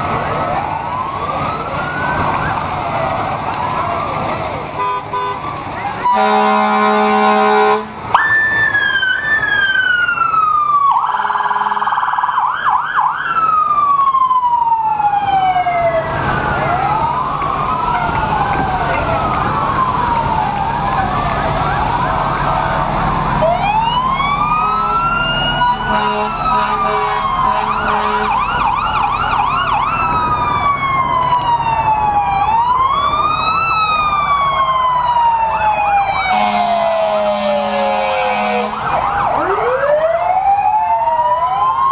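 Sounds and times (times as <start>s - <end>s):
emergency sirens wailing: 0.0s - 41.9s
vehicle horn blast: 4.8s - 5.4s, 6.1s - 7.9s, 25.9s - 28.4s, 36.3s - 38.8s.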